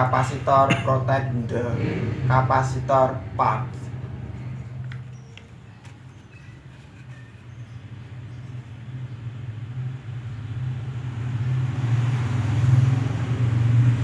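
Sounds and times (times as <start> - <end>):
motor engine humming: 0.0 - 10.6.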